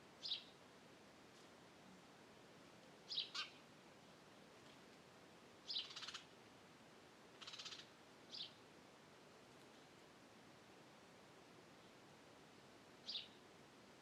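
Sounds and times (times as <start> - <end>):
wild birds chirping: 3.1 - 3.7, 5.6 - 6.3, 7.4 - 8.6, 13.0 - 13.4.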